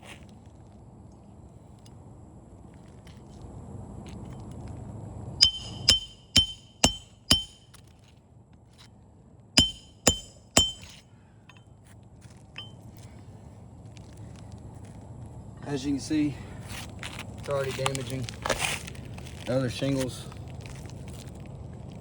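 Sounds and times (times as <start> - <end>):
hammer striking steel: 5.4 - 7.8, 9.6 - 11.0, 12.6 - 12.8.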